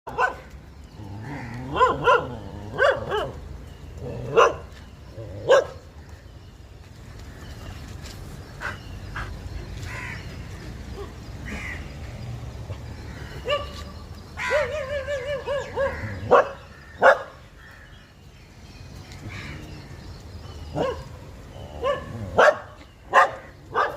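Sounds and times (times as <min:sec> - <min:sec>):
dog barking: 0:00.1 - 0:00.4, 0:01.7 - 0:03.4, 0:04.3 - 0:04.6, 0:05.5 - 0:05.8, 0:14.5 - 0:17.3, 0:21.8 - 0:23.9.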